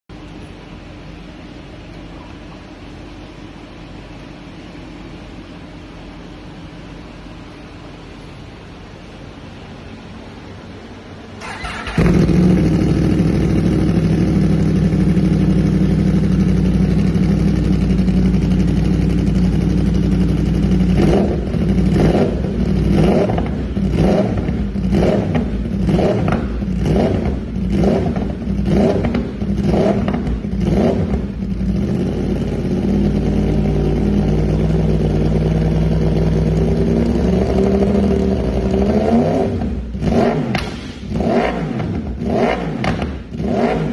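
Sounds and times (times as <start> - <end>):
motorcycle engine idling and revving: 11.2 - 43.9.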